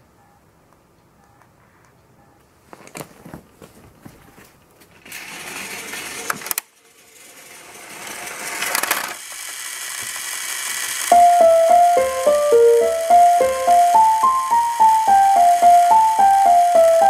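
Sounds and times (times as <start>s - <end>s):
wheels clicking on rail joints: 4.8s - 11.6s, 12.7s - 17.0s
toy train motor whirring: 5.0s - 17.0s.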